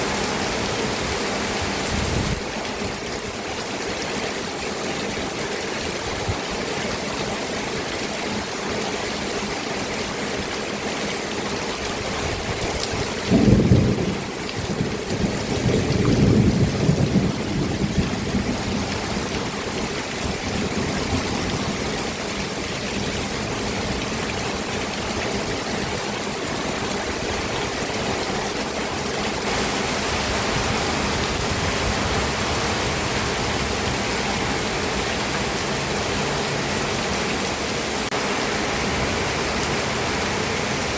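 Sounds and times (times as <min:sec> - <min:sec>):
steady rain: 0:00.0 - 0:40.9
thunder rumbling: 0:13.2 - 0:22.1.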